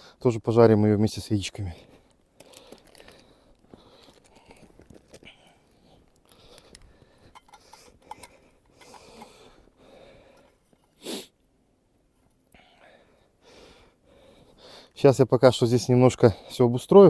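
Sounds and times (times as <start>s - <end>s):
plastic bags rustling: 2.4s - 5.2s.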